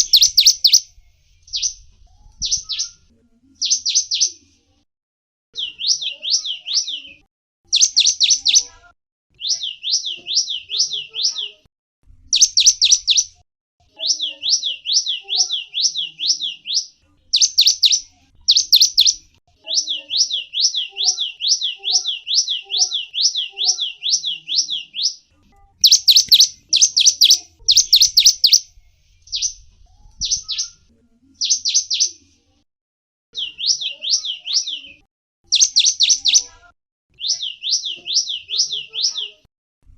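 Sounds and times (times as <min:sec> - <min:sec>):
songbird chirping: 0:00.0 - 0:04.6, 0:05.6 - 0:11.7, 0:12.3 - 0:32.4, 0:33.4 - 0:39.4.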